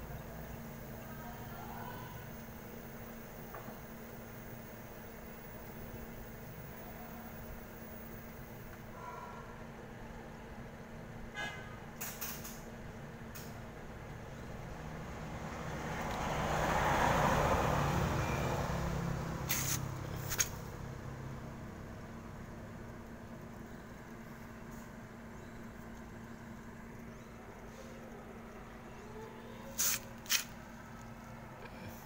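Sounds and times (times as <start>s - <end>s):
vehicle passing by: 14.7s - 22.0s
steady low hum: 17.9s - 32.0s.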